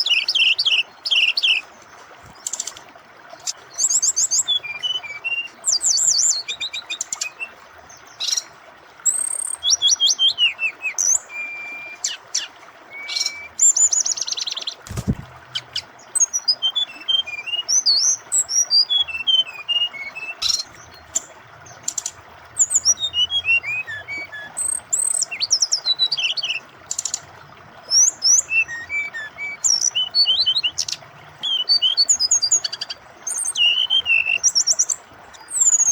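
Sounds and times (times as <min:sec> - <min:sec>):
bird singing chirps and trills: 0:00.0 - 0:35.9
flowing water rushing: 0:00.0 - 0:35.9
dull thump: 0:14.9 - 0:15.7.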